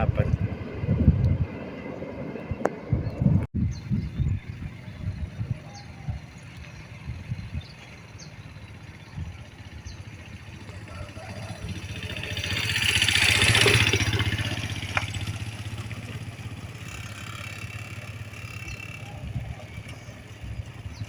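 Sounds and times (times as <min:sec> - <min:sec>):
motor vehicle passing by: 0:04.4 - 0:21.0.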